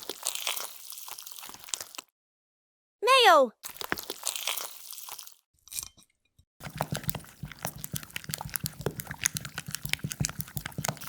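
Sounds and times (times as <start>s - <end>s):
crunchy food being chewed: 0.0s - 2.1s, 3.6s - 5.4s, 6.6s - 11.0s.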